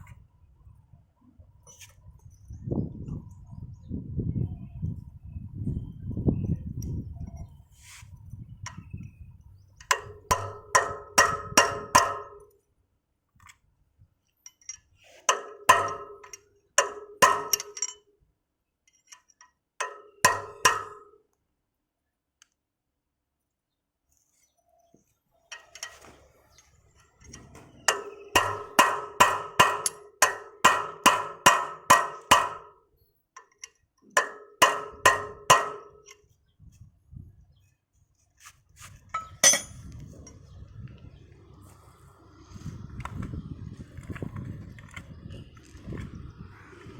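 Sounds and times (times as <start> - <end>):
hammer striking metal: 9.9 - 12.4, 15.3 - 18.0, 19.8 - 21.2, 27.6 - 32.8, 34.2 - 36.0, 39.2 - 39.8.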